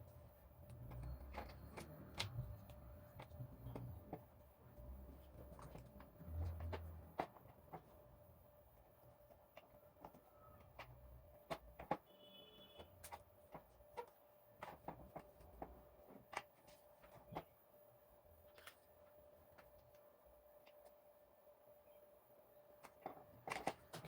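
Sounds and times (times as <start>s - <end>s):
small parts clicking and tapping: 0.0s - 8.2s, 8.8s - 17.5s, 22.8s - 24.0s
faint steady hum: 0.0s - 24.0s.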